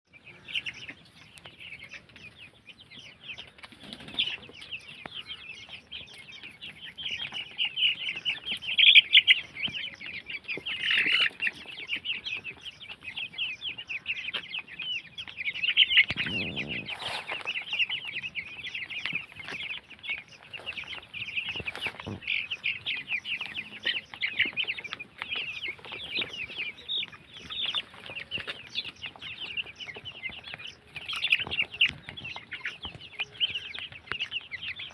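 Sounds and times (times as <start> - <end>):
chicks peeping: 0.1 - 34.9
lower chicken call or flutter: 16.1 - 17.6.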